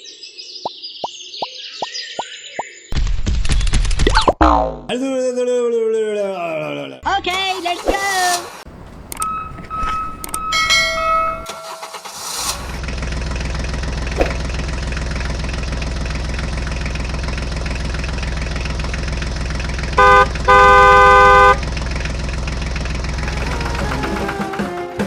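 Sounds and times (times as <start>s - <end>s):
tractor engine running: 8.4s - 25.0s
horn honking: 9.1s - 12.8s, 19.8s - 22.0s, 23.0s - 24.8s.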